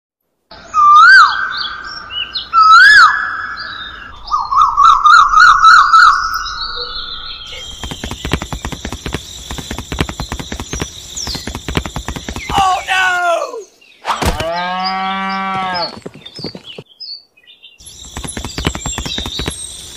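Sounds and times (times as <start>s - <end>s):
bird whistling and trilling: 0.6s - 12.9s
rapid ticking: 7.6s - 12.9s, 17.9s - 19.9s.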